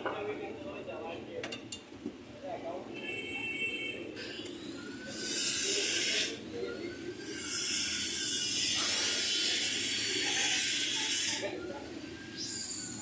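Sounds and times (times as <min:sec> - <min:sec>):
loud hissing bursts: 0:04.2 - 0:06.4, 0:07.2 - 0:11.5.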